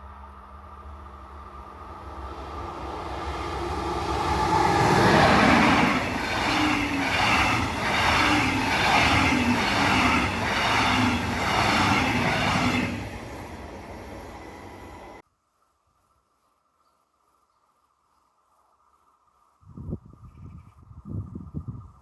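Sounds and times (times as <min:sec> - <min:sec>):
train passing: 0:00.0 - 0:15.2.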